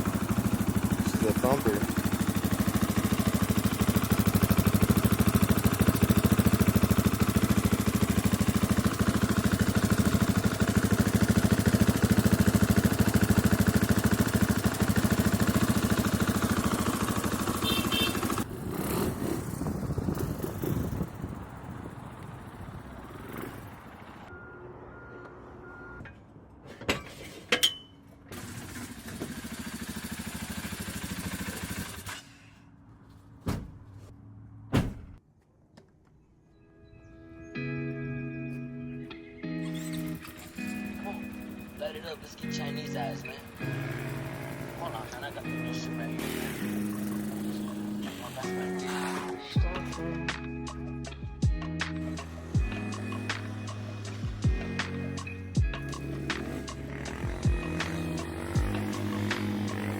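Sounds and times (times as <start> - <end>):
dirt bike engine running: 0.0 - 24.3, 28.3 - 32.2, 39.7 - 50.0, 51.4 - 59.9.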